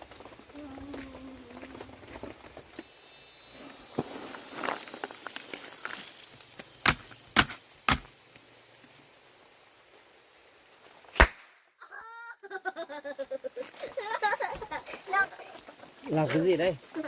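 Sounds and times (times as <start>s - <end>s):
outdoor background noise: 0.0s - 17.0s
sharp knocks or cracks: 6.8s - 8.1s.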